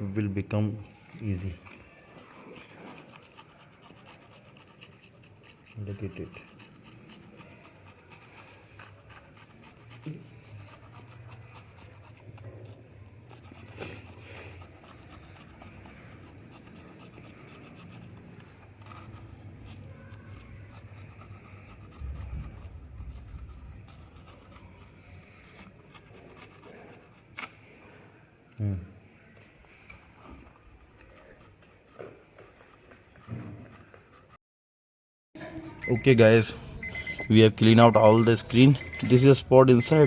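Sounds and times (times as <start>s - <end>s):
scratchy rubbing on glass: 0.8s - 28.0s.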